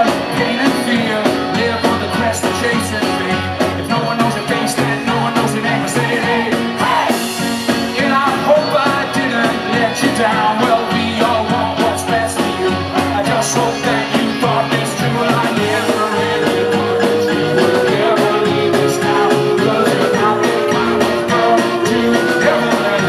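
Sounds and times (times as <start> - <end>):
rock band playing live: 0.0 - 23.0
person singing: 7.9 - 23.0.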